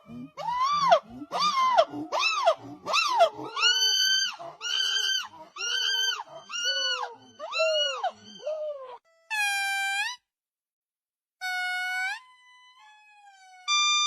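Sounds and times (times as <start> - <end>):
monkey squealing calls: 0.1 - 10.2.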